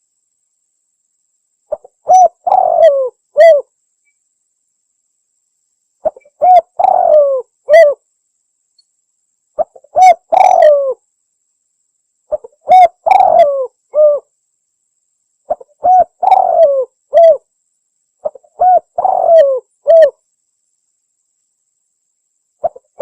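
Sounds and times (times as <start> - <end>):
dove cooing: 1.7 - 3.7, 6.0 - 8.0, 9.6 - 11.0, 12.3 - 14.3, 15.5 - 17.4, 18.2 - 20.2.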